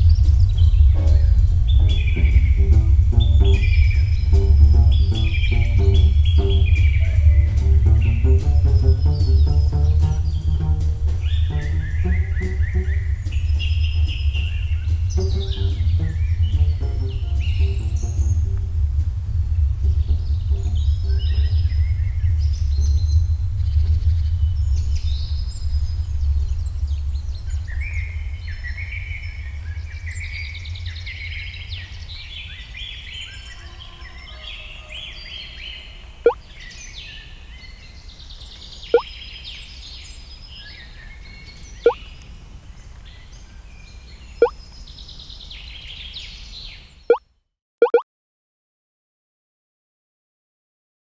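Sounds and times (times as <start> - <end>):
low drone: 0.0 - 32.2
birds chirping: 0.0 - 47.2
short blips falling in pitch: 47.8 - 48.0.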